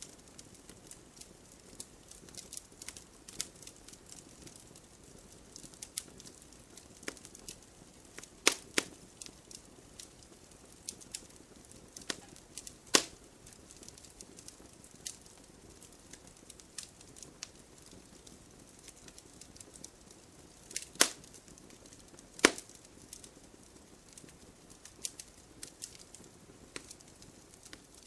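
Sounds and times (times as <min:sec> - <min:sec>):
low hiss of burning: 0:00.0 - 0:28.0
wood fire crackling: 0:00.0 - 0:28.0.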